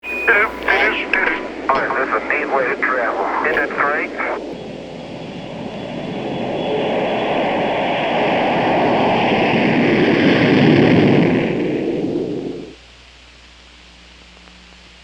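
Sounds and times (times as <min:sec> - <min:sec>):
faint high whine: 0:00.0 - 0:09.2
aircraft noise: 0:00.0 - 0:12.7.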